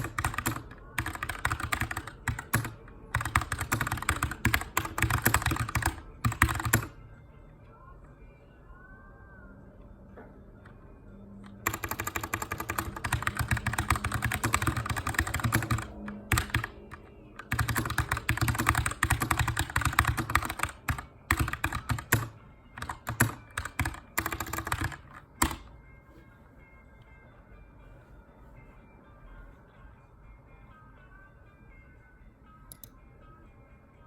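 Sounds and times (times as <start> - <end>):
mechanical keyboard typing: 0.0 - 7.0, 11.4 - 25.7.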